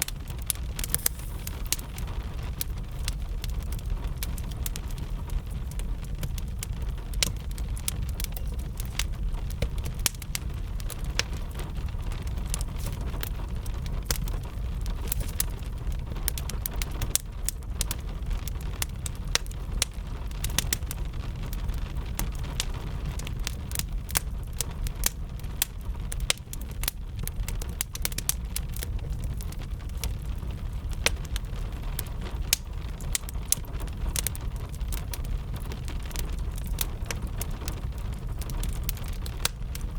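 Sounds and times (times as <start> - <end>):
rain hissing: 0.0 - 3.9
wood fire crackling and popping: 0.0 - 39.9.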